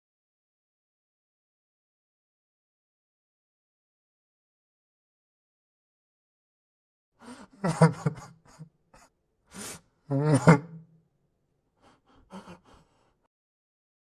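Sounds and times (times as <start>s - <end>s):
sharp gasping breath: 7.2s - 7.6s, 9.5s - 9.9s, 11.8s - 13.3s
man sobbing and wailing: 7.2s - 8.6s, 9.6s - 10.8s, 11.9s - 13.0s.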